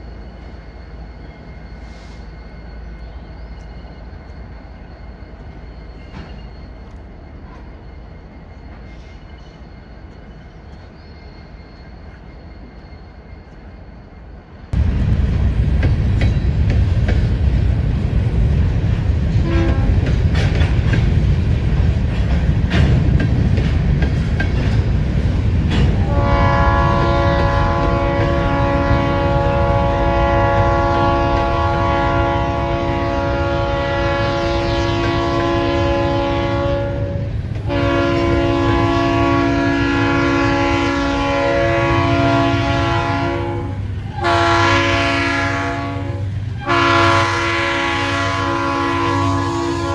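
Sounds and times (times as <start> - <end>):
train wheels clicking and clattering: 0.0 - 47.4
train rumble: 0.0 - 49.9
locomotive air horn chord: 19.4 - 20.0, 26.0 - 49.9.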